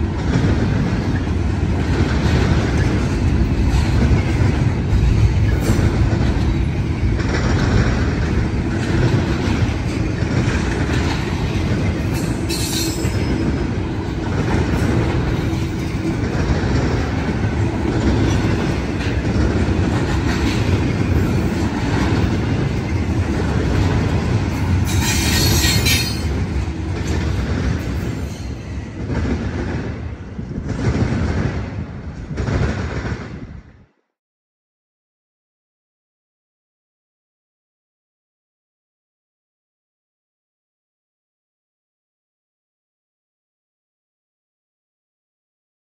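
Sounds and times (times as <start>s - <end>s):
train wheels clattering on rails: 0.0s - 34.0s.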